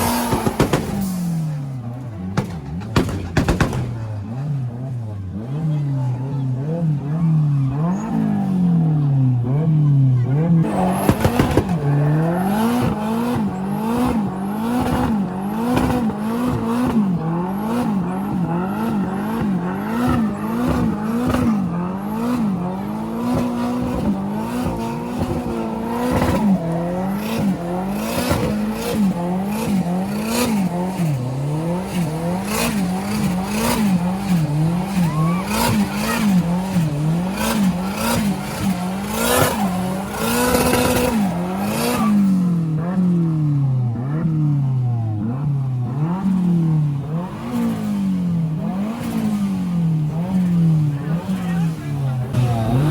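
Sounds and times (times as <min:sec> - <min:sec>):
car engine revving: 0:00.0 - 0:52.9
tyre squeal: 0:33.0 - 0:42.3.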